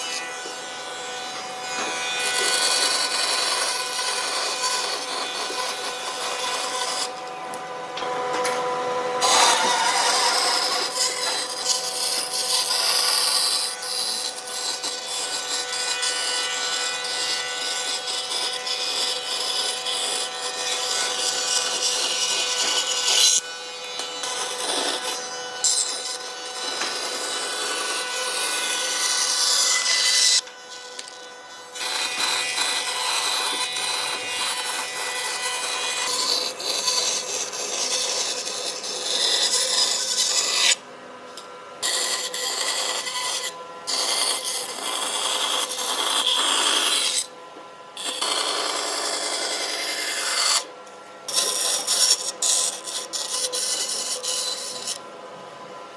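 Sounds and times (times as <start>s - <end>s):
power tool rasping on wood: 0.0s - 8.0s, 8.6s - 40.8s, 41.8s - 47.4s, 48.0s - 55.1s.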